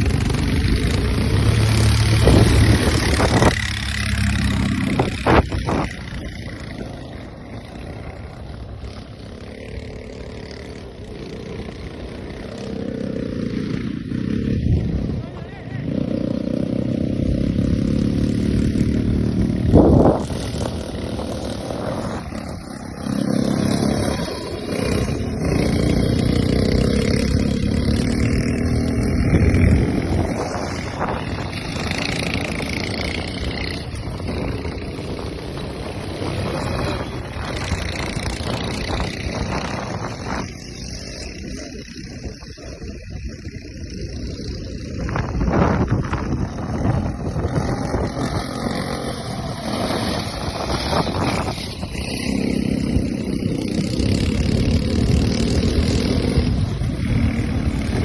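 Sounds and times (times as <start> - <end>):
quad bike engine revving: 0.0 - 58.0.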